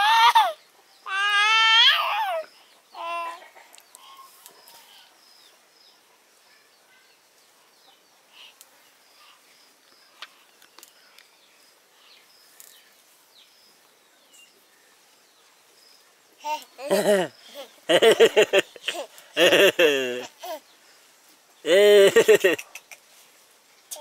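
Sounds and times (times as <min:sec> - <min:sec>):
toddler babbling cry: 0:00.0 - 0:04.3
faint bird chirps: 0:02.0 - 0:19.2.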